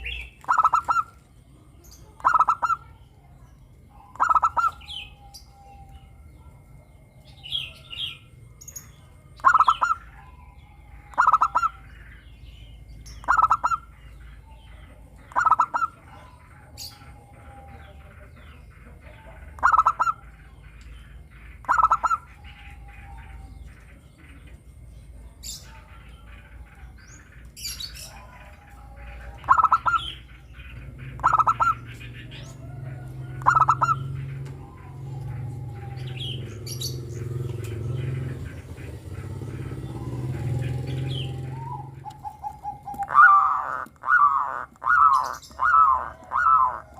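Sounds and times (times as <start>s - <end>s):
dove cooing: 0.0s - 12.1s, 12.7s - 20.6s, 21.2s - 46.9s
faint small bird chirps: 0.0s - 32.6s.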